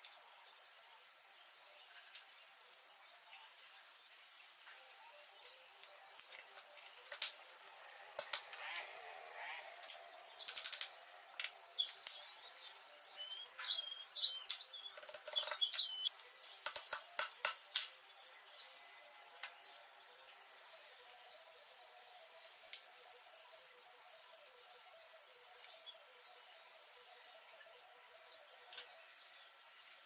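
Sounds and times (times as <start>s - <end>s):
bird chirps: 11.7s - 16.9s
sharp clicks and knocks: 16.6s - 18.0s.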